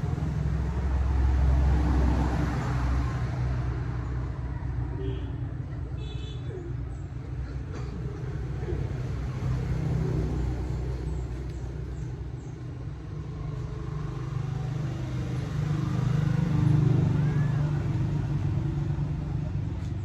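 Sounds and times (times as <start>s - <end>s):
motorcycle engine rumble: 5.0s - 20.0s.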